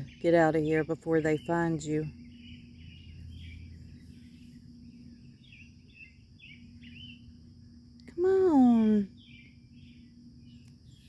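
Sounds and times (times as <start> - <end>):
faint bird chirping: 0.0 - 11.0
low outdoor background noise: 0.0 - 11.0.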